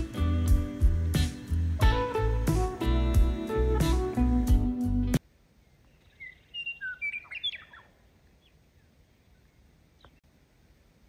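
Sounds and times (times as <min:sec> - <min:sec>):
faint hiss: 0:00.0 - 0:06.0
birds chirping: 0:05.6 - 0:10.2.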